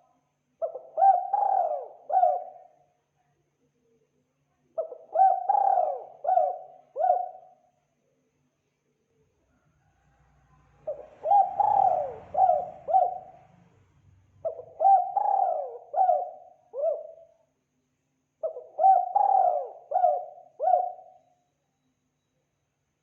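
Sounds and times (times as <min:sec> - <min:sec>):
dove cooing: 0:00.6 - 0:02.8, 0:04.8 - 0:07.6, 0:10.8 - 0:13.5, 0:14.4 - 0:17.4, 0:18.4 - 0:21.2.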